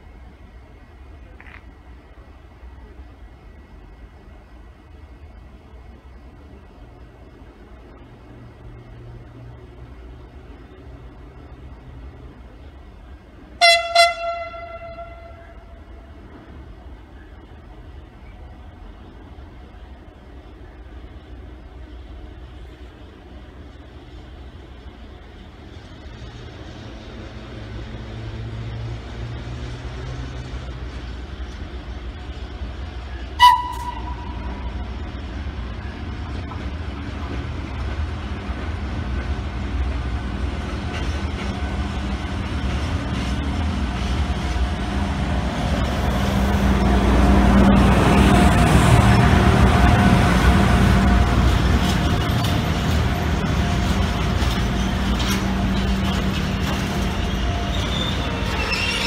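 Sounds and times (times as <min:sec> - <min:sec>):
train rumbling past: 0:00.0 - 0:59.0
short high train horn toot: 0:13.6 - 0:15.8, 0:33.4 - 0:34.7.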